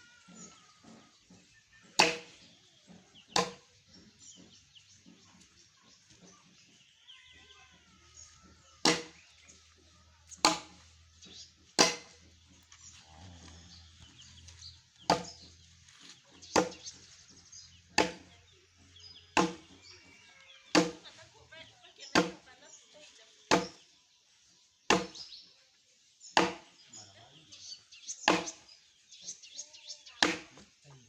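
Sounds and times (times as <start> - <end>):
wood being chopped: 0.8 - 4.5, 8.8 - 9.6, 10.3 - 12.4, 15.0 - 15.5, 16.4 - 17.1, 17.9 - 18.4, 19.3 - 19.8, 20.7 - 21.2, 22.1 - 22.5, 23.5 - 23.8, 24.9 - 25.3, 26.4 - 26.8, 28.2 - 28.7, 30.2 - 30.7.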